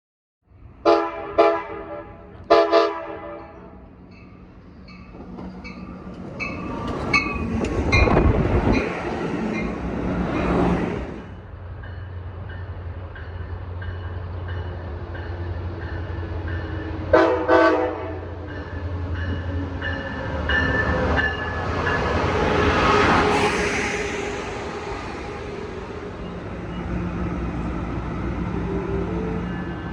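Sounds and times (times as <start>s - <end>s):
locomotive air horn blasts: 0.8s - 3.7s, 17.1s - 18.3s
locomotive engine rumbling: 3.6s - 29.9s.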